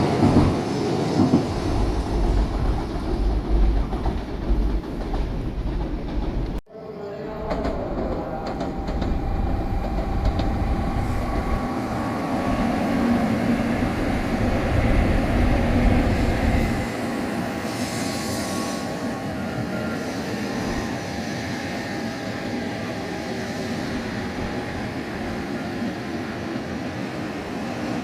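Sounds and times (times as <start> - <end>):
train rushing past: 0.0 - 28.0.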